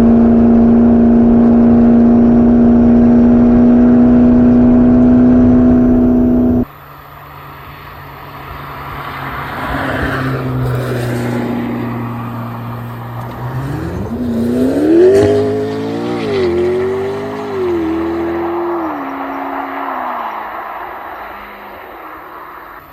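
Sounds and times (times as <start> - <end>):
car engine revving: 0.0 - 6.7, 7.4 - 22.9.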